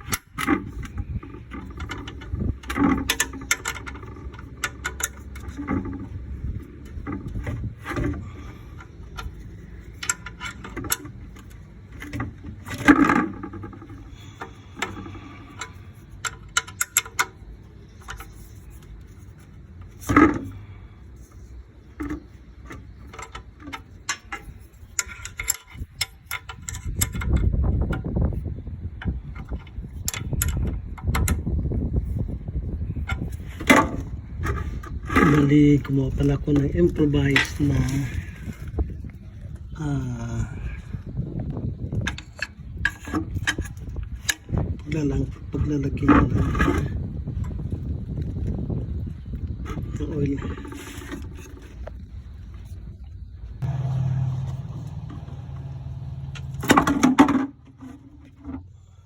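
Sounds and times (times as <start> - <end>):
low rumbling: 52.0 - 59.0.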